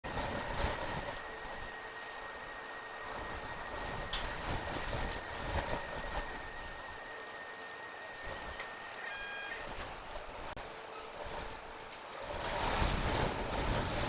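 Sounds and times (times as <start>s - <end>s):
wind buffeting microphone: 0.0s - 14.0s
brief pitched tone: 6.4s - 9.8s.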